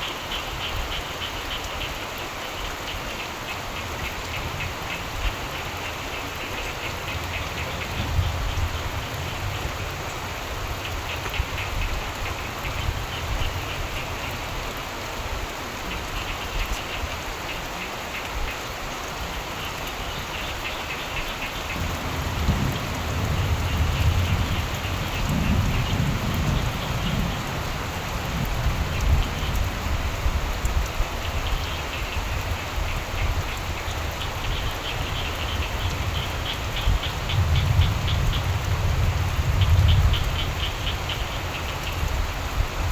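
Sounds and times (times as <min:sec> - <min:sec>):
frogs croaking: 0:00.0 - 0:42.8
steady rain: 0:00.0 - 0:42.9
low thunder rumbling: 0:21.6 - 0:30.9, 0:35.1 - 0:41.8.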